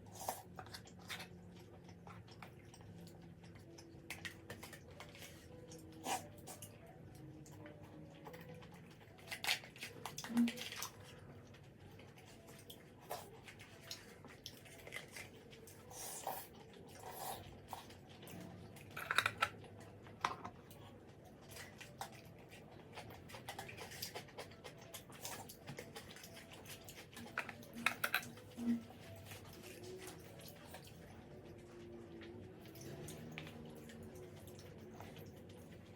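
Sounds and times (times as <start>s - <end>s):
person chewing: 21.4s - 31.0s.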